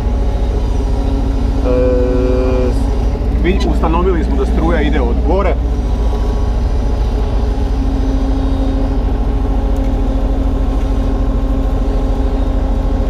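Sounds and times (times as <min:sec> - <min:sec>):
diesel engine running: 0:00.0 - 0:13.0
steady high tone: 0:00.0 - 0:13.0.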